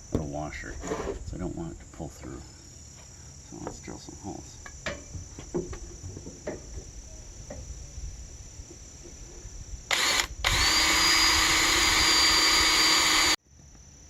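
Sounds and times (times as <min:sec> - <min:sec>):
electric drill whining: 0:09.9 - 0:13.4.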